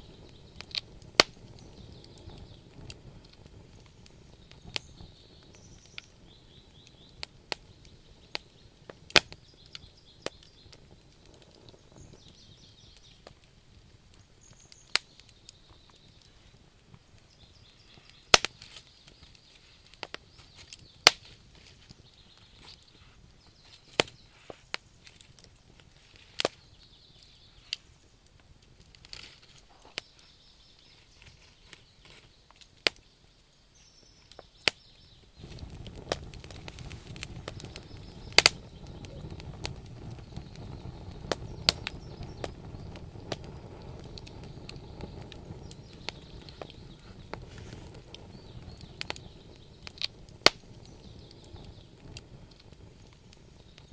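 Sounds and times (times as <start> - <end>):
campfire crackling: 0.0 - 53.9
faint high chirps: 37.2 - 42.9.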